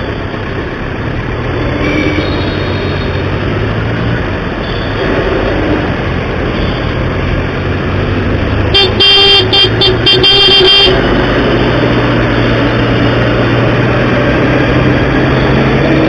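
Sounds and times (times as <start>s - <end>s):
road and engine noise: 0.0s - 16.0s
vehicle horn honking: 1.8s - 3.2s, 8.7s - 11.2s.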